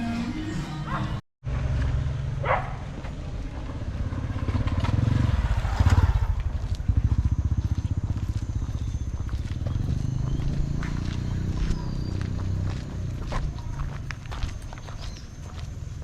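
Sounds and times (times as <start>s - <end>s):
motorbike engine chugging: 2.4s - 16.0s.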